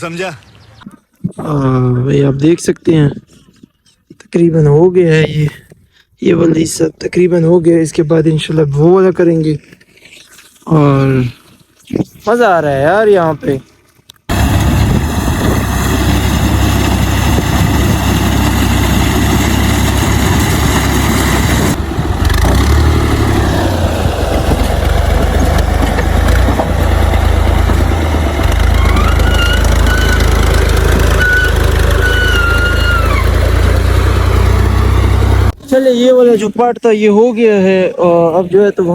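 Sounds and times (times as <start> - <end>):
tractor engine running: 14.3 - 36.3.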